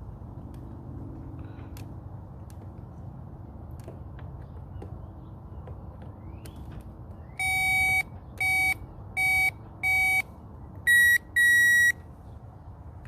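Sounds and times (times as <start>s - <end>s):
longer electronic beeps: 7.4s - 10.3s, 10.9s - 12.0s
short electronic beeps: 7.4s - 10.3s, 10.9s - 12.0s.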